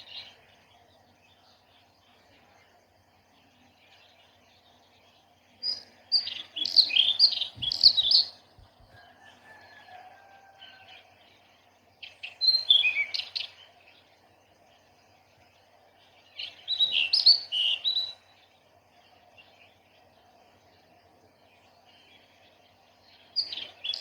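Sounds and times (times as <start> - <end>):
faint background noise: 0.0 - 24.0
small birds chirping: 0.0 - 24.0.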